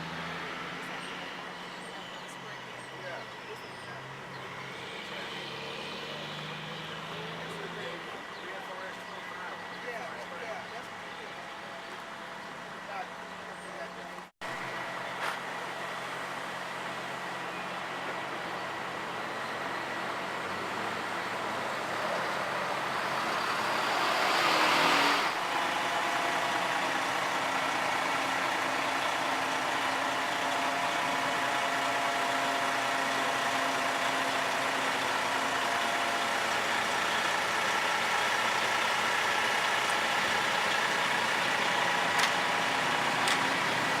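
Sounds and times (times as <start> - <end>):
engine running steadily: 0.0 - 44.0.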